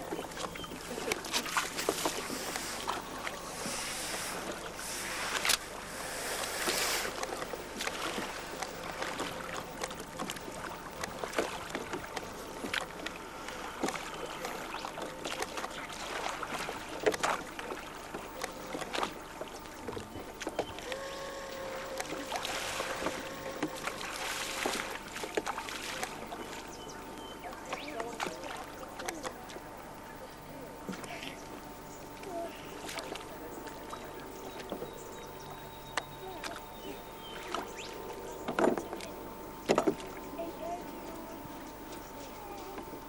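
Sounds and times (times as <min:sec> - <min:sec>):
steady wash of water noise: 0:00.0 - 0:14.1, 0:21.4 - 0:26.7
faint steady hum: 0:00.0 - 0:43.0
scattered knocks and clicks: 0:38.3 - 0:40.1.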